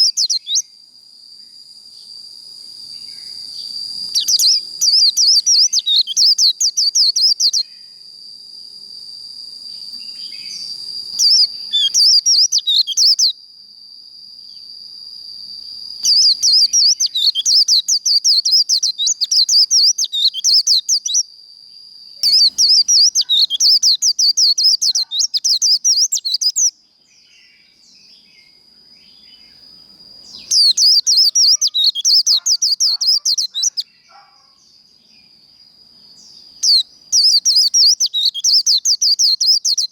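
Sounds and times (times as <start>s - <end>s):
bird twittering: 0.0s - 0.6s, 3.1s - 7.7s, 10.0s - 13.3s, 16.0s - 21.2s, 22.2s - 26.7s, 30.2s - 34.5s, 36.2s - 39.9s.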